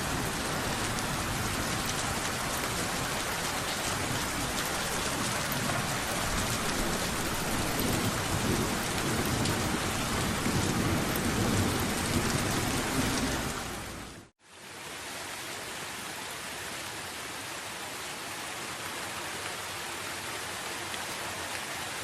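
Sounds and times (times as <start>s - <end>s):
rain pattering: 0.0s - 14.3s, 17.5s - 22.0s
low thunder rumbling: 4.0s - 14.1s.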